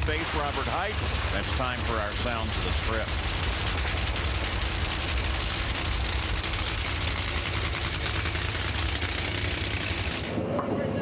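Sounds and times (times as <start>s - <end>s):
race car engines crackling: 0.0s - 11.0s.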